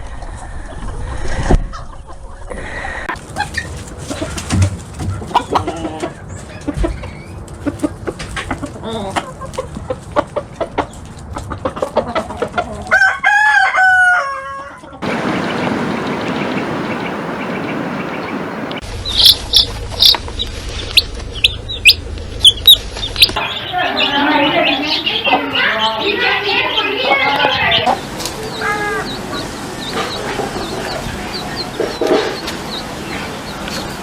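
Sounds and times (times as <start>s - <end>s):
chickens clucking: 0.1s - 34.0s
rooster crowing: 12.9s - 18.3s
even rushing noise: 15.0s - 23.4s.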